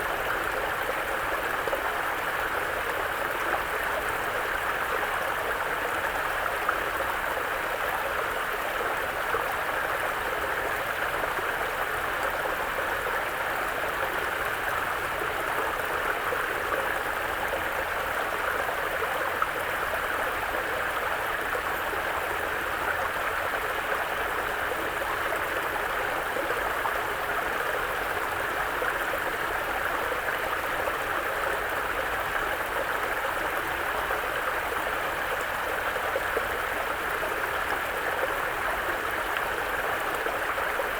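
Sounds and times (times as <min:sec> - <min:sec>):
brook babbling: 0:00.0 - 0:40.9.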